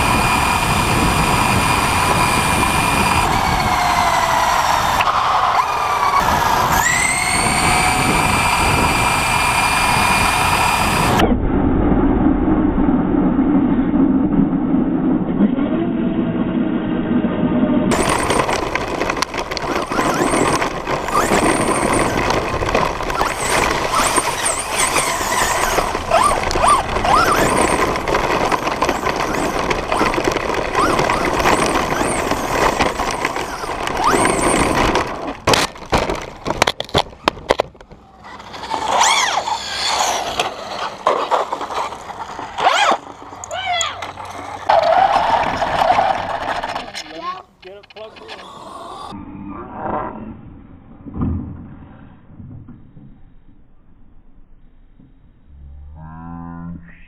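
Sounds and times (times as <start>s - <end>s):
electric motor whine: 0.0s - 11.2s, 17.9s - 37.0s, 38.2s - 47.0s, 48.0s - 49.2s
tyres on rough road: 0.0s - 11.3s, 17.9s - 49.2s.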